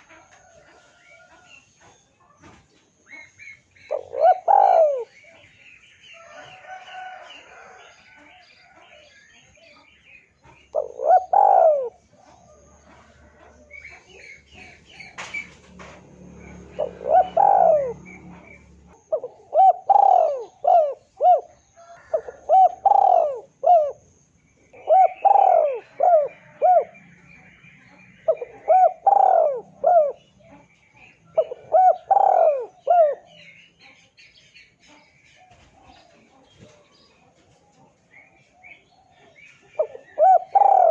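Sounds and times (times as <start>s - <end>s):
dove cooing: 0.0s - 5.6s, 10.4s - 33.5s, 37.8s - 40.9s
small birds chirping: 0.0s - 40.9s.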